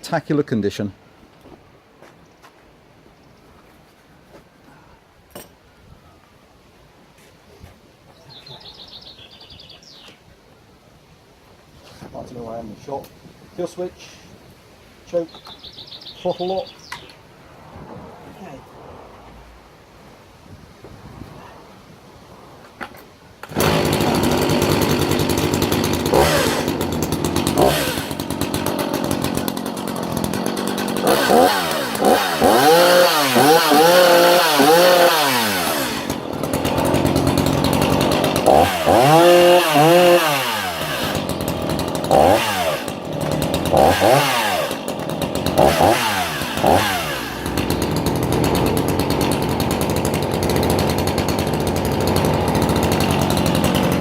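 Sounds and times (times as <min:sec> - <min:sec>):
chainsaw idling and revving: 0:23.4 - 0:54.0.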